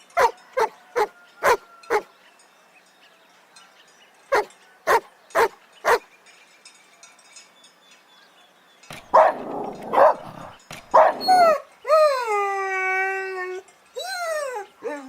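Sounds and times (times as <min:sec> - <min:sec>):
dog barking: 0:00.2 - 0:02.0, 0:04.3 - 0:06.0, 0:09.1 - 0:11.3
dog howling: 0:00.2 - 0:02.1.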